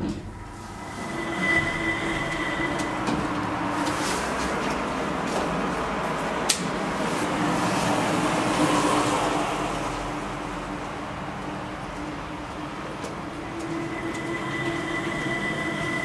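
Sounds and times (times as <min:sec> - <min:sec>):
low hum: 0:00.0 - 0:06.0
train rumbling: 0:00.0 - 0:16.0.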